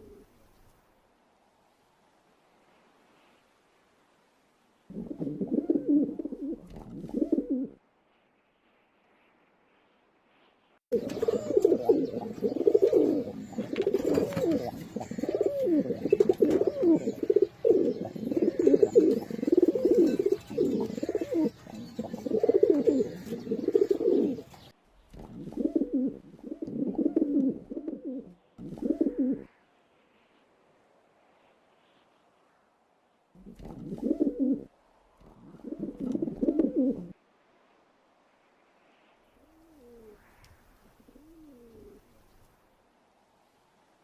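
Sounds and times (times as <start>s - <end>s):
pigeons cooing: 0.0s - 0.3s, 4.9s - 7.8s, 10.9s - 29.5s, 33.4s - 37.2s, 39.5s - 40.2s, 40.9s - 42.2s.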